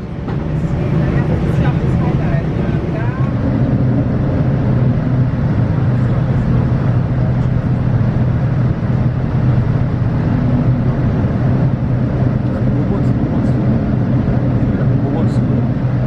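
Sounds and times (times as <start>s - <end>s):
aircraft engine and airflow rumble: 0.0s - 16.0s
low hum: 0.0s - 16.0s.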